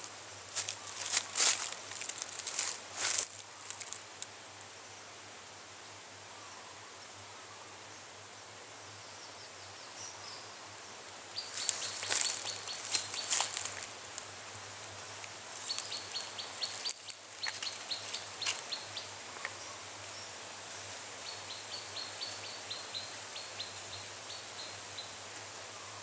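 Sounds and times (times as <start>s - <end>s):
rustling: 0.0s - 4.3s, 11.4s - 19.6s
outdoor background hiss: 0.0s - 26.0s.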